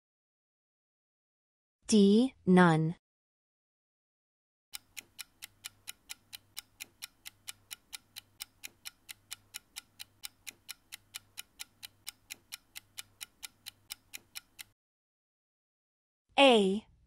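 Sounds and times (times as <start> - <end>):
countdown timer ticking: 4.8 - 14.8.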